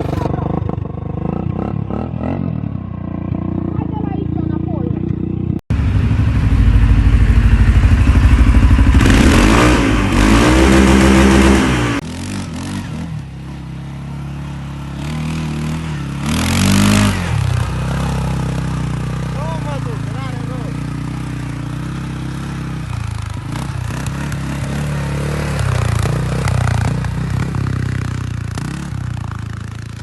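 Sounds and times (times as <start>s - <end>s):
off-road vehicle engine revving: 0.0s - 30.0s.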